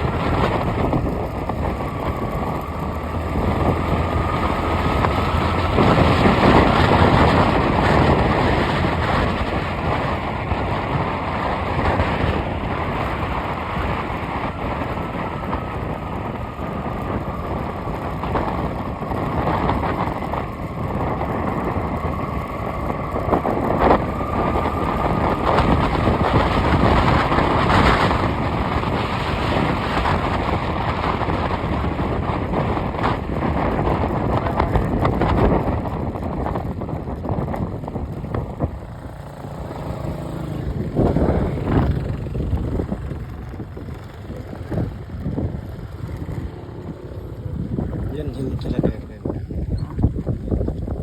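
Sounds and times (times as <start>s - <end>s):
vehicle engine and road noise: 0.0s - 51.0s.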